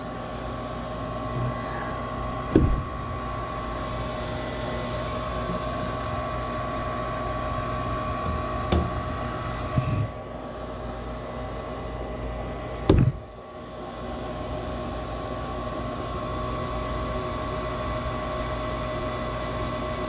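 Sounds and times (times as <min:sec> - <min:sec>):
motor humming: 0:00.0 - 0:13.9
sharp knocks: 0:02.5 - 0:02.9, 0:12.9 - 0:13.2.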